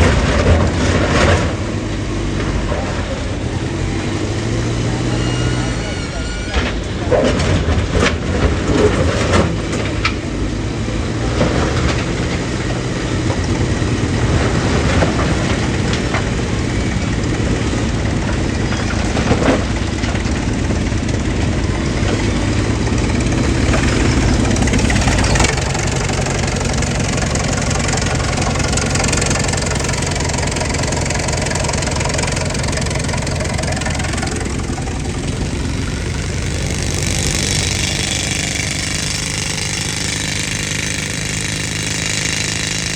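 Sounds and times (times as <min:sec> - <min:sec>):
air compressor running: 0:12.1 - 0:42.9.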